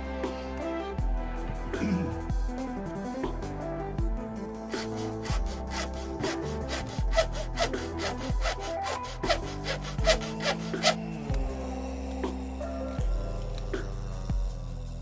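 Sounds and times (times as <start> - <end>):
background music: 0.0 - 15.0
hand tool rasping plastic: 4.8 - 11.0.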